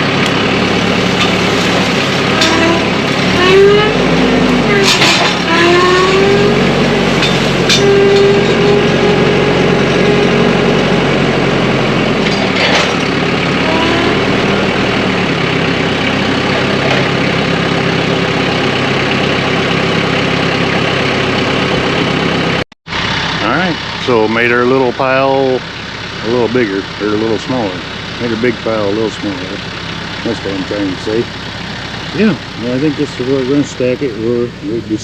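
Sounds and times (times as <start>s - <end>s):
short rising whines: 0.0s - 24.6s
tractor diesel engine running: 0.0s - 35.0s.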